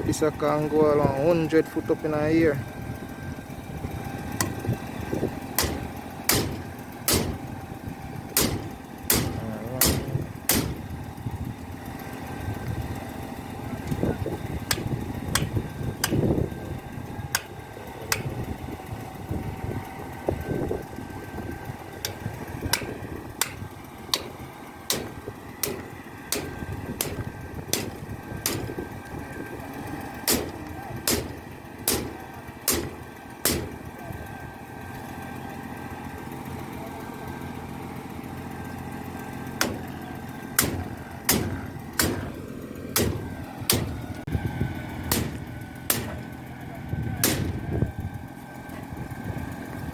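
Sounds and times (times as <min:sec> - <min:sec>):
truck engine running: 0:00.0 - 0:49.9
sharp knocks: 0:05.6 - 0:07.5, 0:08.4 - 0:10.9, 0:14.7 - 0:16.3, 0:22.0 - 0:28.9, 0:30.2 - 0:33.8, 0:39.6 - 0:39.9, 0:40.6 - 0:42.4, 0:43.0 - 0:44.1, 0:45.1 - 0:46.3, 0:47.2 - 0:47.6.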